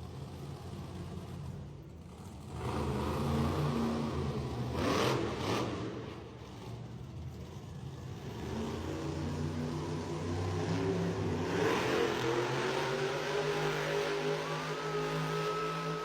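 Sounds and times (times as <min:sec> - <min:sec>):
truck engine revving: 0:10.3 - 0:16.0.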